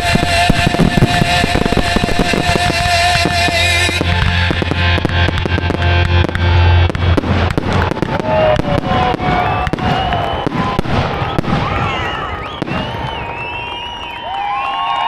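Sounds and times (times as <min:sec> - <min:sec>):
music track: 0:00.0 - 0:10.4
fireworks bangs and crackling: 0:00.0 - 0:15.0
firework whistles: 0:04.6 - 0:15.0.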